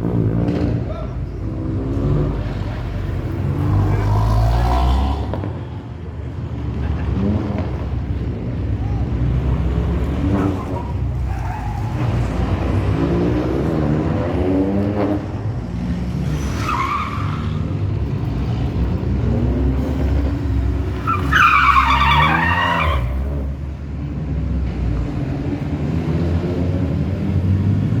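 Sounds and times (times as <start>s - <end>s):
rally car engine revving: 0.0s - 28.0s
tyres squealing: 8.7s - 12.8s, 16.2s - 18.6s, 19.5s - 23.6s.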